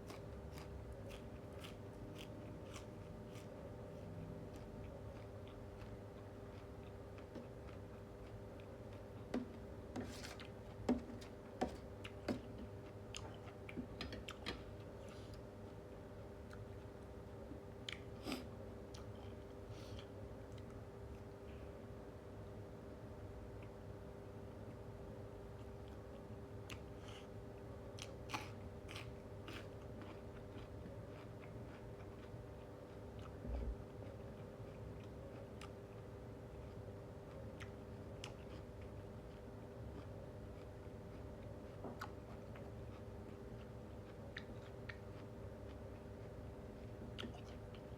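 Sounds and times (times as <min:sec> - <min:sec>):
person chewing with mouth clicks: 0:00.0 - 0:15.5, 0:16.4 - 0:21.3, 0:28.0 - 0:33.4, 0:36.6 - 0:47.9
low background hum: 0:00.0 - 0:47.9.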